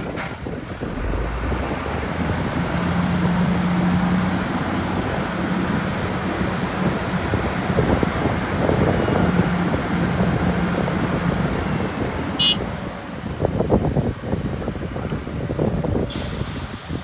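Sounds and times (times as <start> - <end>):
diesel engine running: 0.0 - 16.9
high beep: 12.4 - 12.6.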